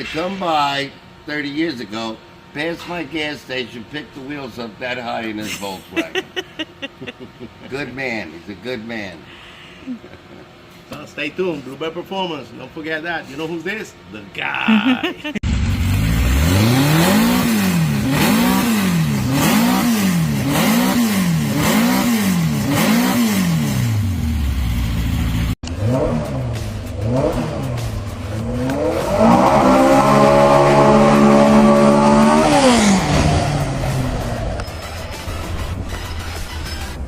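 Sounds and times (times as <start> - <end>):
car engine revving: 15.4 - 36.6.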